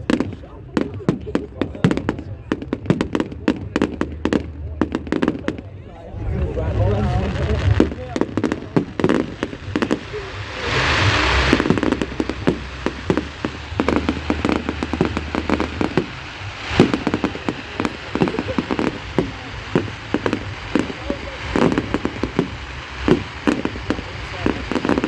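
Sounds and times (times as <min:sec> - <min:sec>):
fireworks crackling and banging: 0:00.0 - 0:25.0
rushing hiss: 0:06.6 - 0:25.0.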